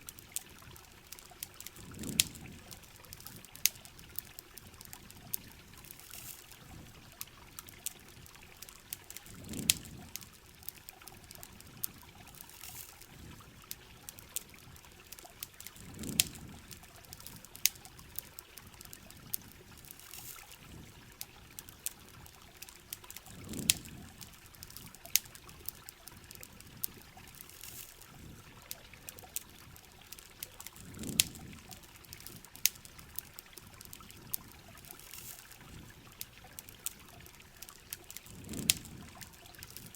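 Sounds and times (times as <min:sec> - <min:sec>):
burning wood crackling: 0:00.0 - 0:39.9
low rush of water: 0:00.0 - 0:39.9
rain hissing: 0:00.0 - 0:39.9.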